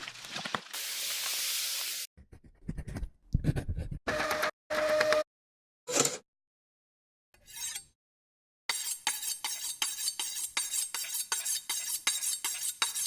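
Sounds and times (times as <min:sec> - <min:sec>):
hiss: 0:00.8 - 0:02.1.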